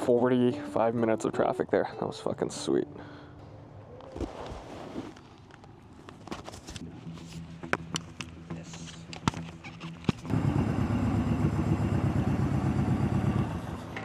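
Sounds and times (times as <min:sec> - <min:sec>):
motorcycle engine running: 0:10.0 - 0:14.0.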